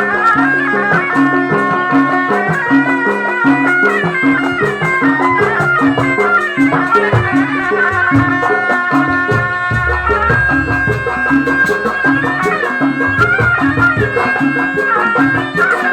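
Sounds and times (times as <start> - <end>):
reedy wind instrument melody: 0.0 - 15.9
drum and gong beat: 5.5 - 15.4.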